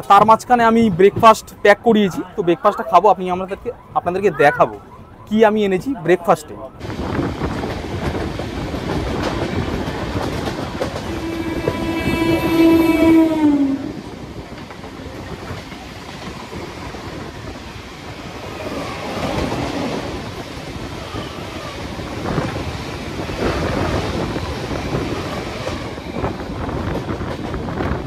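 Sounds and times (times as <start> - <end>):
train running rumble: 6.8 - 28.0
wheels clattering over rail joints: 7.0 - 11.9.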